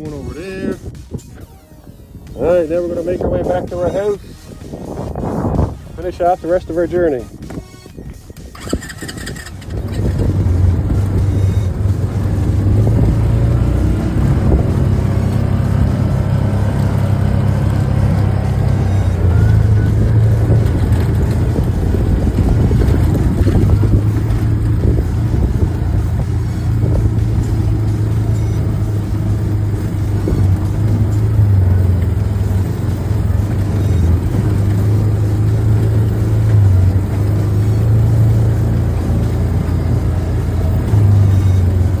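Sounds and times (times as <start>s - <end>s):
quad engine running: 0.0s - 42.0s.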